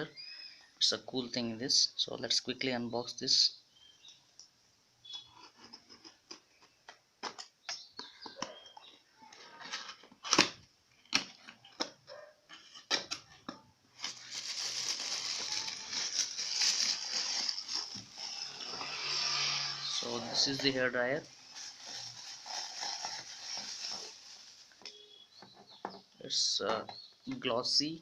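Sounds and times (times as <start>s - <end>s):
packaging rustling: 13.9s - 25.0s.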